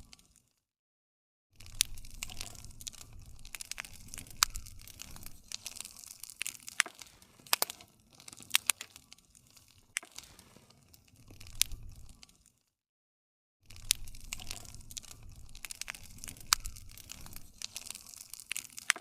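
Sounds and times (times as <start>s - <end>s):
wood fire crackling: 0.0s - 0.5s, 1.6s - 12.6s, 13.7s - 19.0s.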